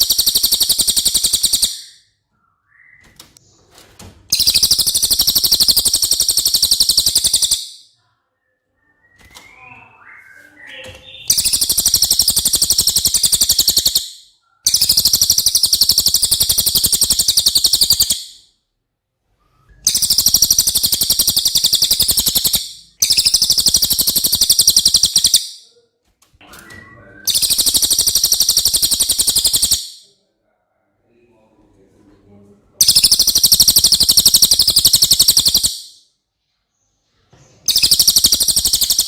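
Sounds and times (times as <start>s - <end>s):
songbird singing fast trill: 0.0s - 2.0s, 4.4s - 7.8s, 11.1s - 14.1s, 19.9s - 25.4s, 27.3s - 29.9s, 32.8s - 35.8s, 37.7s - 39.0s.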